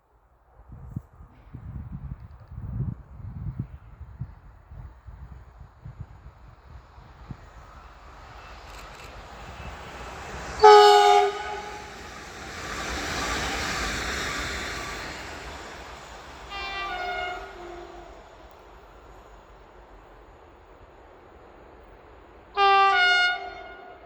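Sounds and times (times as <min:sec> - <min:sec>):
rumble of passing train: 0:00.0 - 0:24.0
railway horn blasts: 0:09.6 - 0:12.0, 0:16.5 - 0:18.3, 0:22.6 - 0:24.0.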